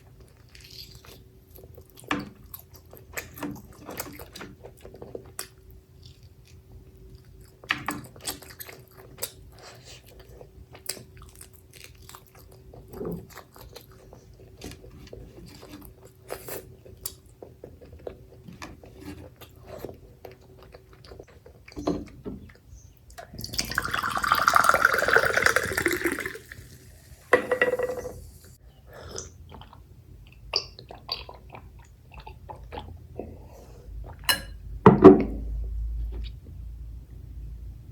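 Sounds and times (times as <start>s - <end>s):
person chewing food: 0.0s - 21.8s, 28.9s - 34.3s.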